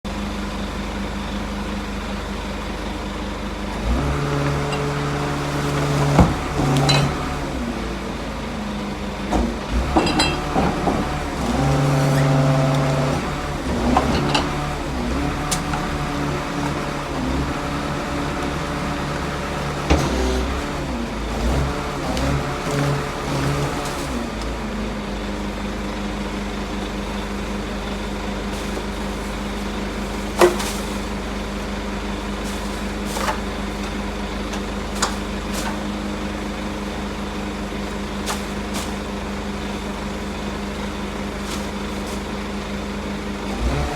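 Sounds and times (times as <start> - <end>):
garbage truck engine running: 0.1 - 43.9
metal clanks and knocks: 9.3 - 11.6, 13.8 - 14.7.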